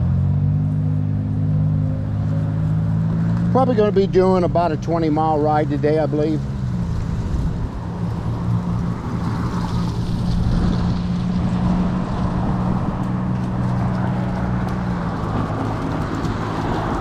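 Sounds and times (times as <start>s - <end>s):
low hum of moving bike: 0.0s - 17.0s
wind rushing over microphone: 6.6s - 17.0s.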